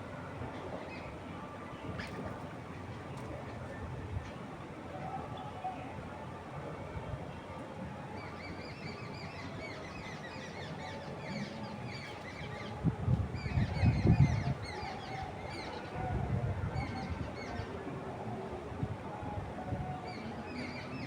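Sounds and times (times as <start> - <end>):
wind gusts rumbling: 12.7 - 15.4.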